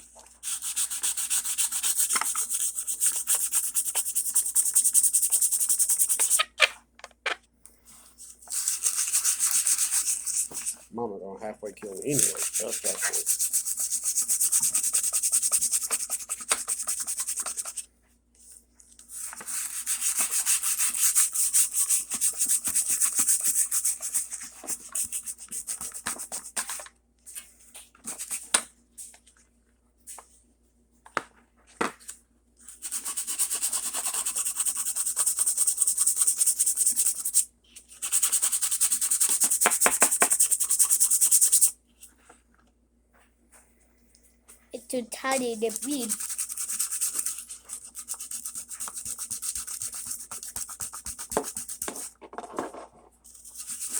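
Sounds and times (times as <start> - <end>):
sandpaper rubbing back and forth: 0.4 - 6.5, 8.5 - 10.8, 11.8 - 17.8, 19.2 - 26.0, 44.9 - 52.1.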